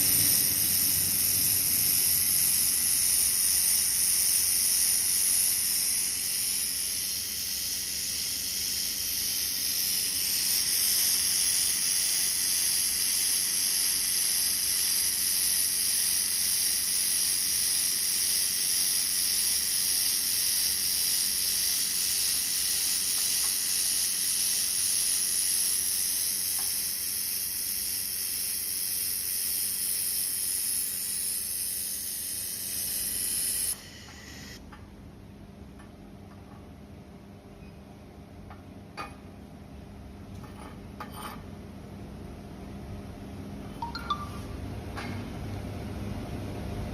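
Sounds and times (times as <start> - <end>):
laser welding machine hissing: 0.0 - 34.6.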